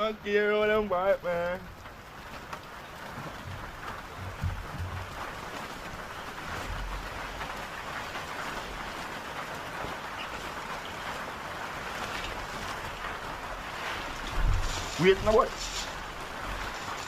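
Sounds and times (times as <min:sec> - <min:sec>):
heavy rain falling: 0:00.0 - 0:17.0
soft low thumps: 0:03.1 - 0:05.4, 0:14.3 - 0:16.6.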